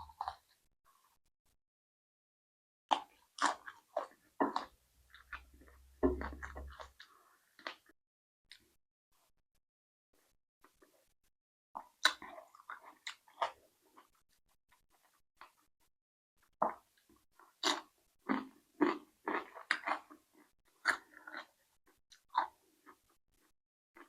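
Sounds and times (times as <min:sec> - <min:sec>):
person chewing food: 0:00.0 - 0:01.2, 0:02.9 - 0:07.9, 0:11.8 - 0:15.7, 0:16.4 - 0:24.0.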